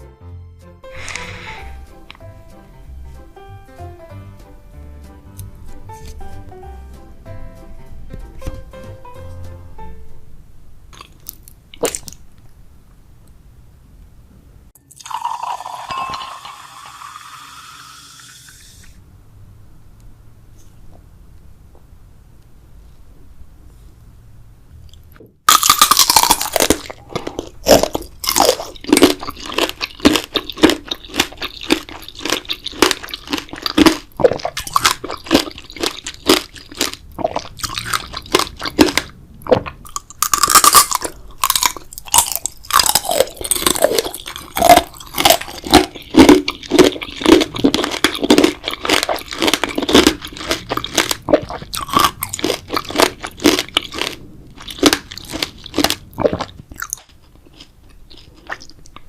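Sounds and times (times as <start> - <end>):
person chewing jelly: 10.9 - 12.4, 24.9 - 59.0
wet mouth clicks and smacks: 11.0 - 12.3.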